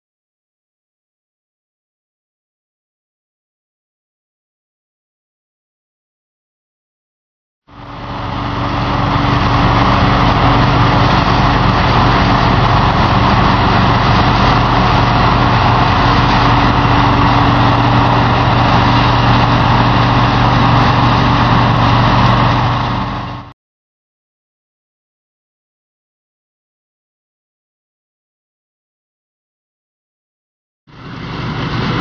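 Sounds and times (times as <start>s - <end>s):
diesel engine running: 7.7s - 23.6s, 30.9s - 32.0s.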